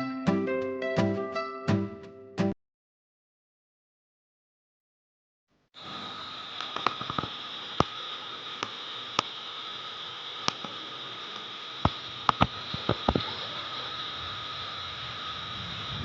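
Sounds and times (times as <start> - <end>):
heavy rain hissing: 5.8 - 16.0
raindrops tapping surfaces: 11.8 - 13.6.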